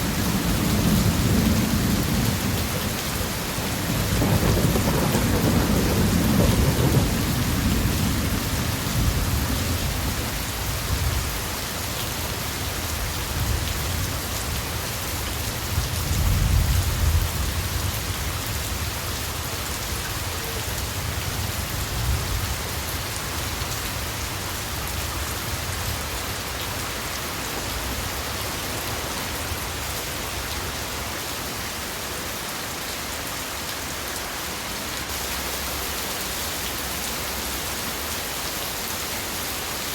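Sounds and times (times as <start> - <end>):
low rolls of thunder: 0.0 - 11.2
heavy rain falling: 0.0 - 39.9.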